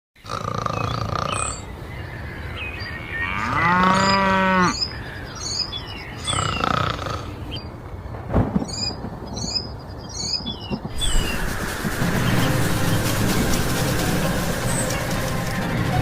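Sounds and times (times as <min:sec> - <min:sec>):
high bird chirps: 0:00.7 - 0:07.8, 0:08.6 - 0:15.8
cow mooing: 0:03.0 - 0:04.8.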